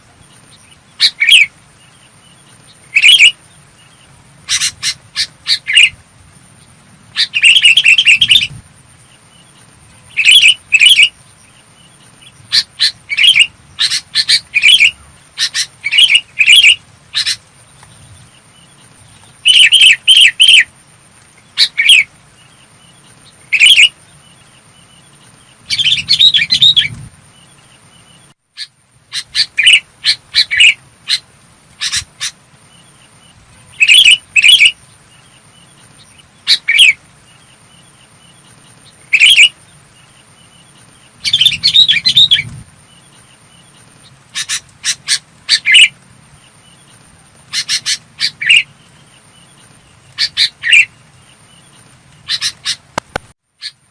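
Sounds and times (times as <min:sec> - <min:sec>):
bulbul singing: 0:00.2 - 0:20.7, 0:21.4 - 0:53.9.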